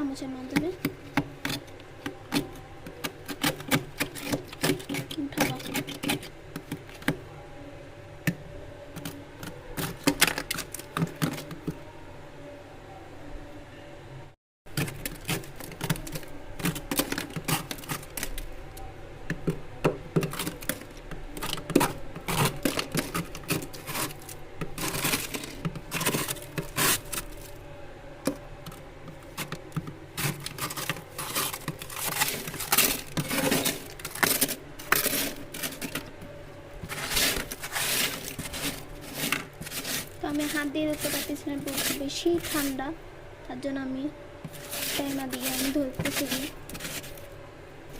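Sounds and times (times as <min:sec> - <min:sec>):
spoon scraping ice: 0:00.8 - 0:07.2, 0:09.0 - 0:11.8, 0:14.7 - 0:18.5, 0:19.4 - 0:27.6, 0:28.3 - 0:36.2, 0:36.8 - 0:42.8, 0:44.4 - 0:47.3.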